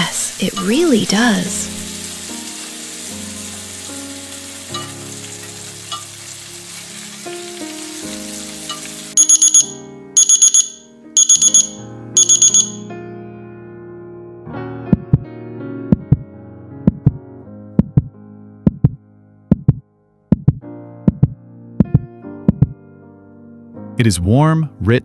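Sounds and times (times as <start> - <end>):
food sizzling in a pan: 0.0 - 9.6
soft background music: 0.0 - 25.0
electronic timer alarm beeping: 9.2 - 12.9.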